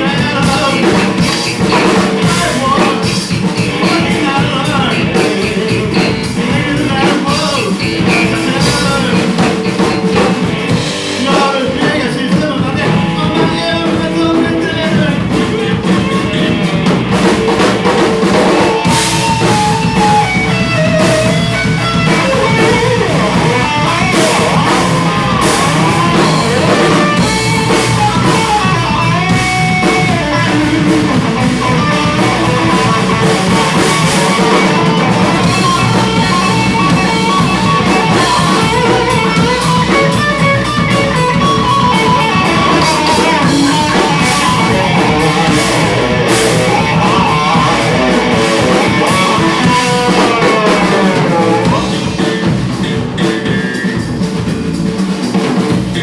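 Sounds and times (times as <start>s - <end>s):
rock band playing live: 0.0s - 56.0s.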